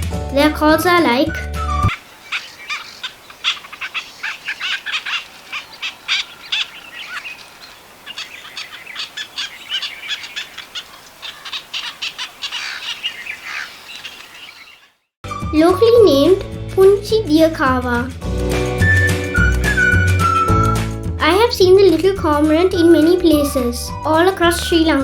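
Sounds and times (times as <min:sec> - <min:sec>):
cormorants calling: 0:01.8 - 0:15.0.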